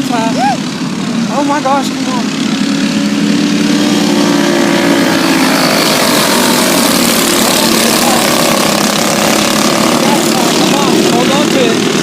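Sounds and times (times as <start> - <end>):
race car engines droning: 0.0 - 12.0.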